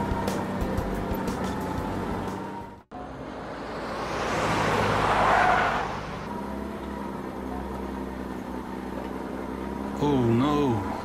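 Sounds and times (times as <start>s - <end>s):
steady engine hum: 0.0s - 11.0s
cartoon vehicle rushing pass-by: 3.0s - 6.5s.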